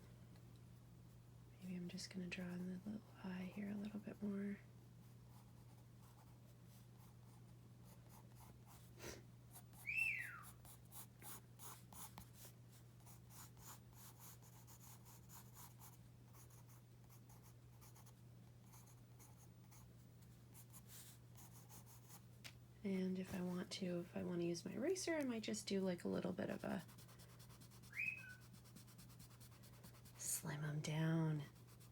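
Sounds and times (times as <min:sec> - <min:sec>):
parrot chirp: 0:09.8 - 0:10.4, 0:27.9 - 0:28.4
pencil scratching on paper: 0:26.8 - 0:30.3.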